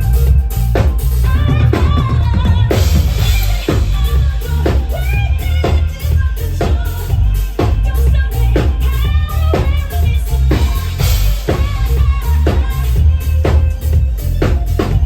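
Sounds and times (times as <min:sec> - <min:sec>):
band music: 0:00.0 - 0:15.0
heavy bass line: 0:00.0 - 0:15.0.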